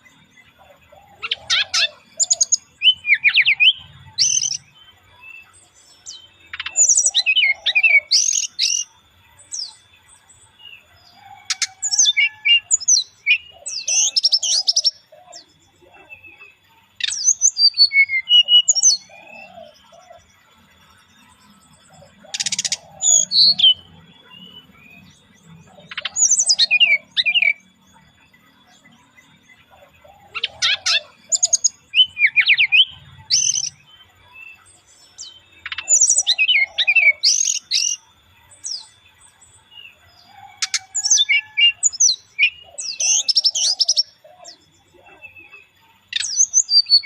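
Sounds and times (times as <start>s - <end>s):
bird whistled song: 0.0s - 9.8s, 11.4s - 15.6s, 17.0s - 20.2s, 21.7s - 27.7s, 28.6s - 39.0s, 39.9s - 44.7s, 46.1s - 47.0s.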